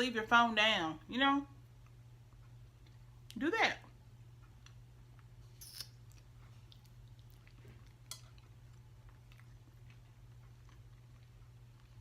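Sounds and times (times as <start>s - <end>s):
low steady hum: 0.0s - 12.0s
faint chewing: 4.4s - 12.0s.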